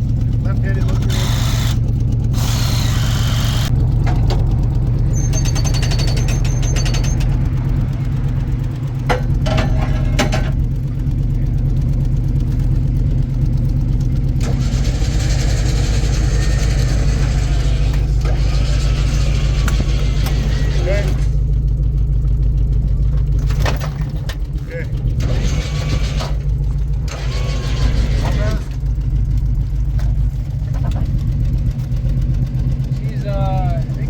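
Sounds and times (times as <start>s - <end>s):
vehicle engine idling: 0.0s - 34.0s
brief squeaks: 5.1s - 7.4s.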